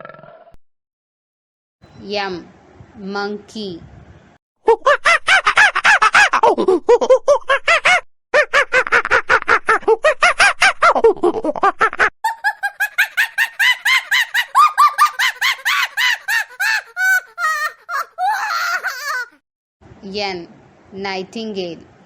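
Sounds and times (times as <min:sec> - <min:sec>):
monkey screeching calls: 0:12.8 - 0:19.4.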